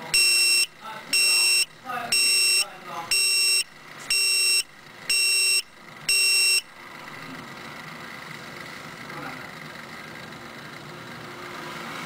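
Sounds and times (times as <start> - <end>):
electronic warning buzzer beeping: 0.0 - 6.7
steady running hum: 0.1 - 11.4.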